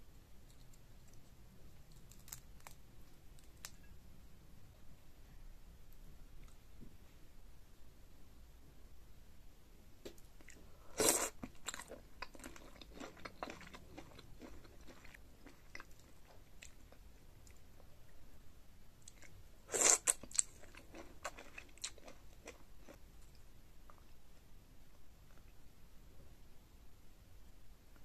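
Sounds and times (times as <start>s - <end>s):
soft chewing clicks: 11.4s - 17.7s.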